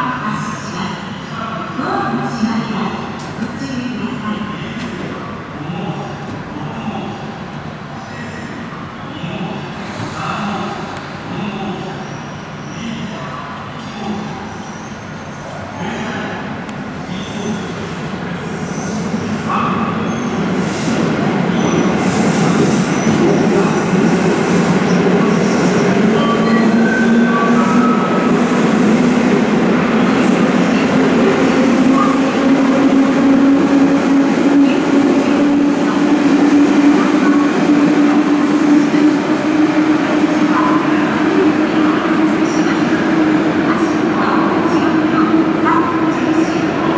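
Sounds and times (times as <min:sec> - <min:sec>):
electric train rumbling: 0:16.1 - 0:46.9.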